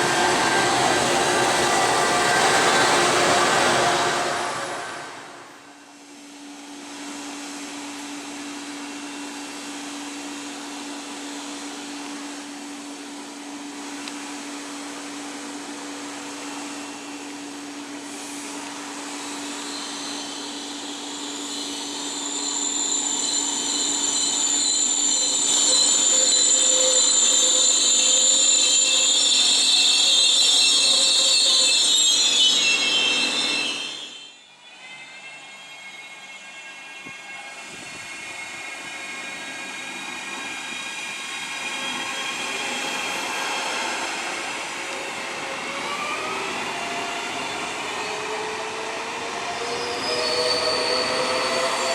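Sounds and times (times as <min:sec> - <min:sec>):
high-pitched metallic squeal: 0:00.0 - 0:05.8, 0:18.2 - 0:51.9
train on rails humming: 0:00.0 - 0:51.9.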